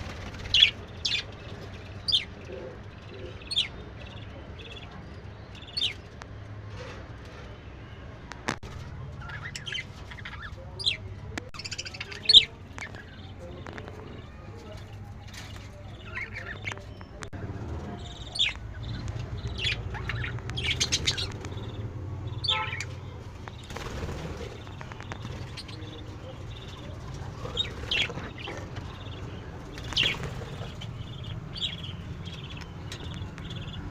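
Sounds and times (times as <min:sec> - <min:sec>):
budgerigars chirping: 0:00.1 - 0:04.9, 0:11.6 - 0:14.1, 0:15.4 - 0:33.9.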